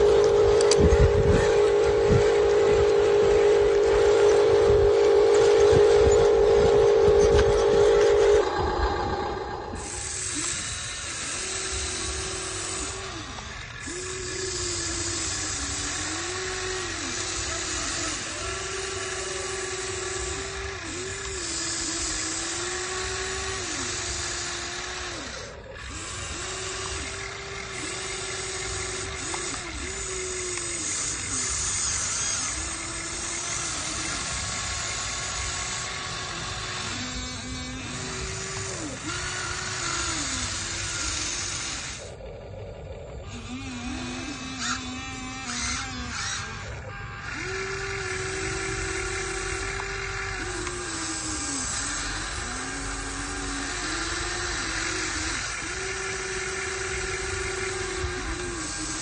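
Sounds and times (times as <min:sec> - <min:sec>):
steady hiss: 0:00.0 - 0:24.8
electric motors whining: 0:00.0 - 0:59.0.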